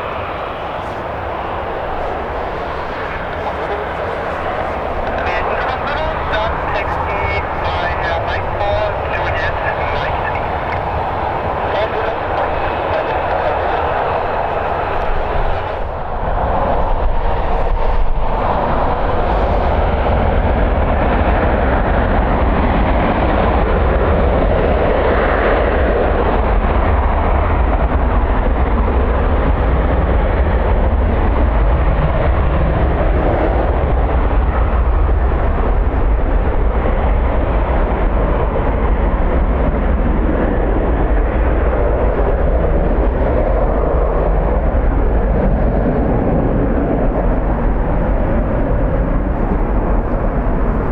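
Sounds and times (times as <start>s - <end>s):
deep low buffeting: 0.0s - 20.2s
wind on microphone: 0.0s - 50.9s.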